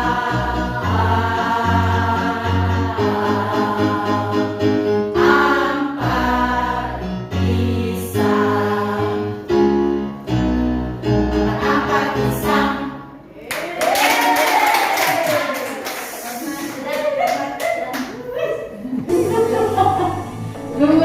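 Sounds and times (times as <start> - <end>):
choir singing held chords: 0.0 - 13.3, 19.1 - 21.0
instrumental accompaniment: 19.1 - 21.0.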